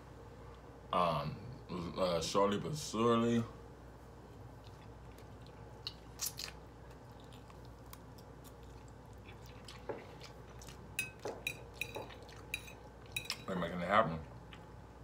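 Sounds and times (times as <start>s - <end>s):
wet chewing: 4.4s - 13.5s.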